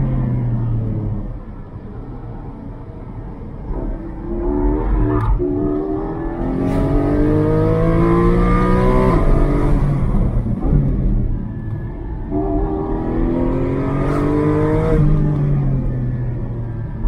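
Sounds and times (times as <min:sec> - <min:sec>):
car engine revving under acceleration: 0:03.7 - 0:11.3, 0:12.3 - 0:16.0.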